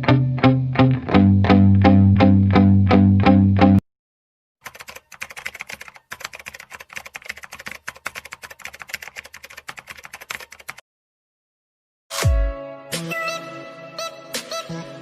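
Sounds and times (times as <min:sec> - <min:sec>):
keyboard typing clicks: 0:04.6 - 0:10.8
background music: 0:12.1 - 0:15.0.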